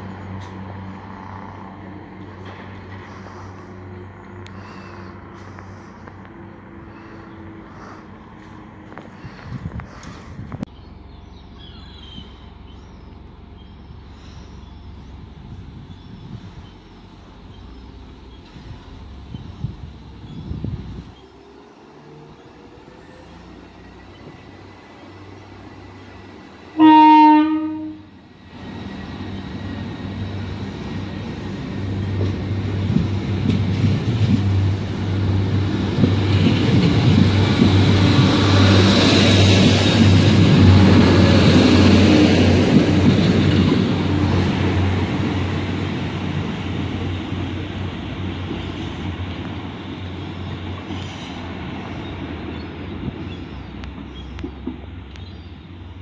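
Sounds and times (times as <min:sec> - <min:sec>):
train engines and wheels passing: 0:00.0 - 0:56.0
train horn blast: 0:26.7 - 0:28.2.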